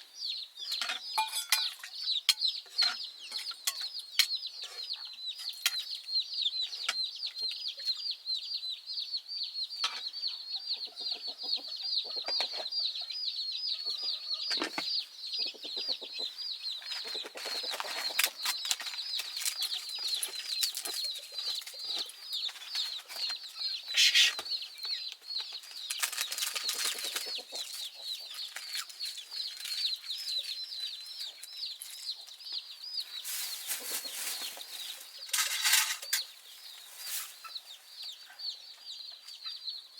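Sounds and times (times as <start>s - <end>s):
chicks peeping: 0.0s - 39.9s
rustling and clattering: 33.2s - 36.3s.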